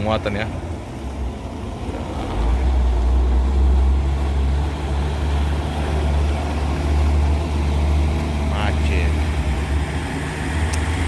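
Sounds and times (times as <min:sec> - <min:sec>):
heavy diesel engine rumbling: 0:00.0 - 0:11.0.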